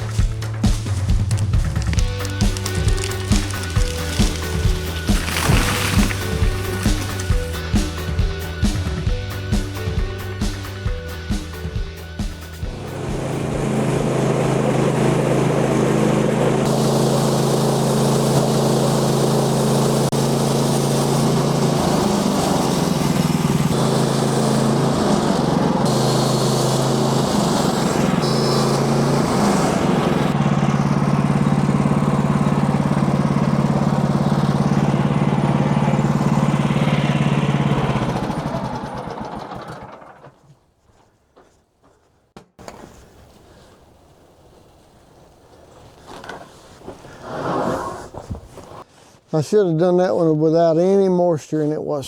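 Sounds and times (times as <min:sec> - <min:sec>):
sawmill gasoline engine running: 0:00.0 - 0:11.5, 0:12.2 - 0:40.6.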